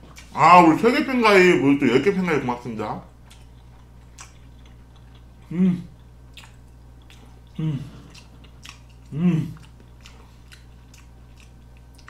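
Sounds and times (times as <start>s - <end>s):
man chewing: 0.0s - 0.4s, 3.1s - 12.0s
man humming mm: 5.4s - 6.0s, 7.5s - 8.2s, 9.0s - 9.7s.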